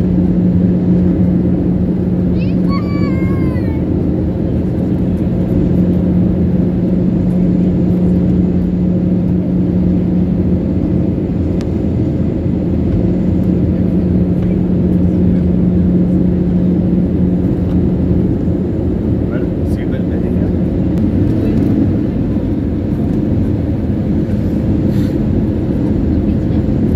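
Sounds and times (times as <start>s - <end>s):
airliner cabin engine drone: 0.0s - 26.9s
constant low hum: 0.0s - 26.9s.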